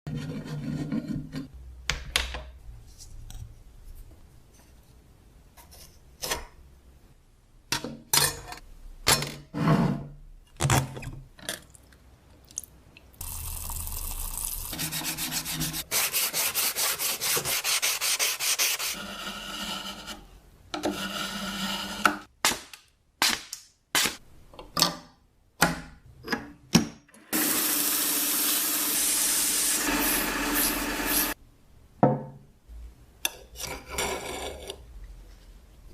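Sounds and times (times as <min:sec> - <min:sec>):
metal being scraped and knocked: 0:00.1 - 0:01.5
abrasive sanding on metal: 0:14.7 - 0:19.7.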